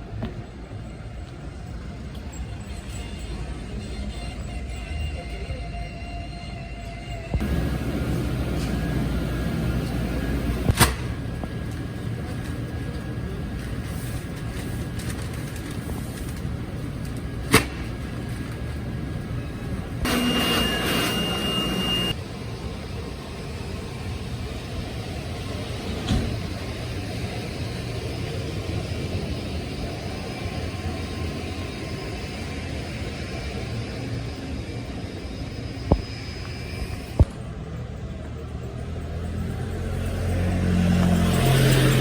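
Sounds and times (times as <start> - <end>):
train rumble inside carriage: 0.0 - 42.0
steady high tone: 19.4 - 25.7.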